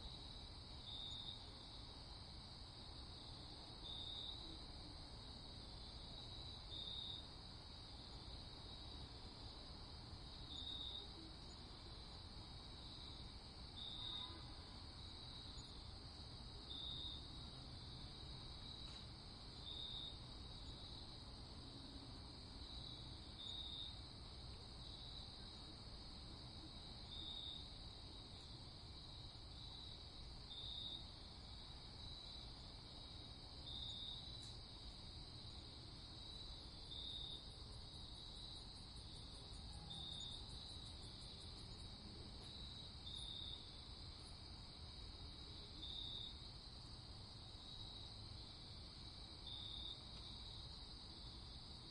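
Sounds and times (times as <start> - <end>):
crickets chirping: 0.0 - 51.9
bright insect trill: 0.8 - 1.4, 13.8 - 15.9, 22.6 - 24.1, 33.6 - 35.6, 36.2 - 41.9, 49.5 - 50.8.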